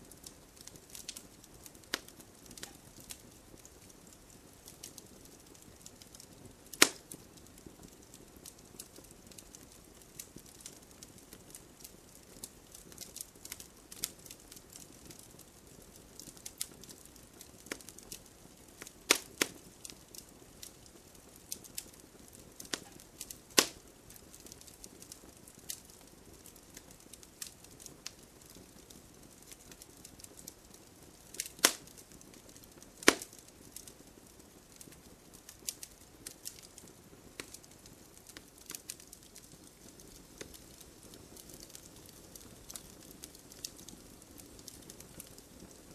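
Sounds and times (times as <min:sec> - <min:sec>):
wood fire crackling: 0:00.0 - 0:45.9
loud sharp pops of logs: 0:06.7 - 0:07.1, 0:19.1 - 0:19.6, 0:23.6 - 0:23.8, 0:31.4 - 0:31.9, 0:33.0 - 0:33.4.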